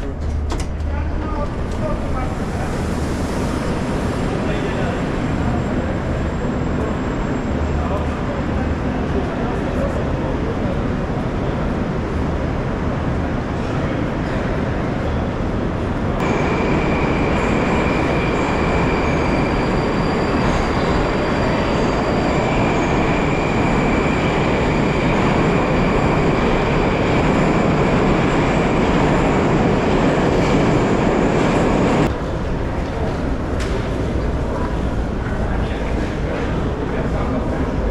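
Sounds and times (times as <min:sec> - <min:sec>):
train wheels rumbling on rails: 0:00.0 - 0:37.9
high whine: 0:16.2 - 0:32.1.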